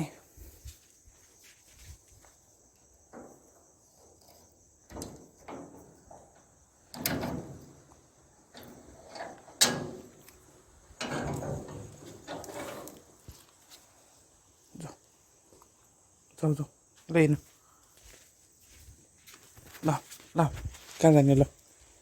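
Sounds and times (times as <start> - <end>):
door rattling and sliding: 4.8 - 13.2.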